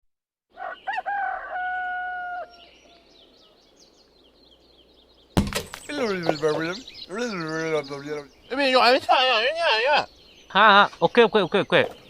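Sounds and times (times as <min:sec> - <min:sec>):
rooster crowing: 0:00.5 - 0:03.2
small birds chirping: 0:00.5 - 0:12.0.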